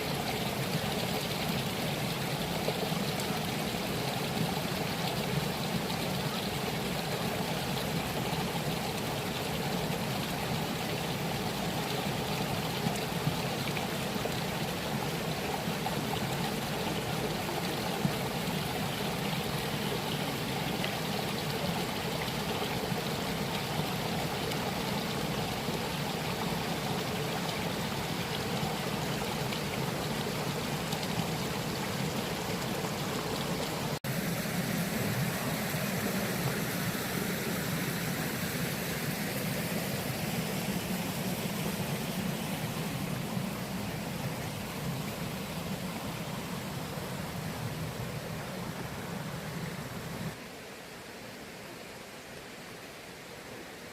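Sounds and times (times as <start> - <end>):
water rushing over rocks: 0.0 - 51.0.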